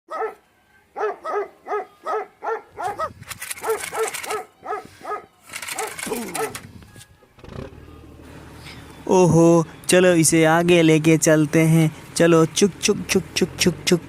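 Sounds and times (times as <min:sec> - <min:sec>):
dog barking: 0:00.1 - 0:00.4, 0:01.0 - 0:06.6.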